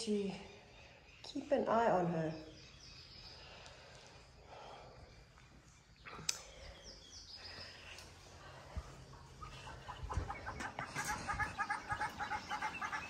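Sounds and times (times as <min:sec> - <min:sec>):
bird chirps: 0:00.1 - 0:04.1.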